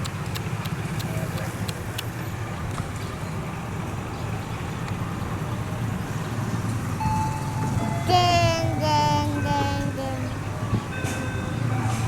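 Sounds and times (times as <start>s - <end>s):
passenger train rumbling: 0.0s - 12.0s
high held tone: 7.2s - 10.4s.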